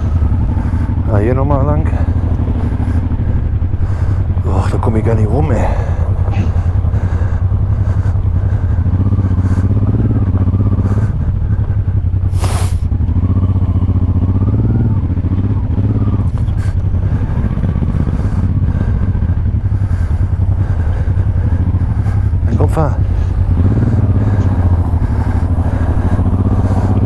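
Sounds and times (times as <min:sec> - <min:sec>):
motorcycle engine revving: 0:00.0 - 0:27.0
hiss: 0:12.3 - 0:12.9.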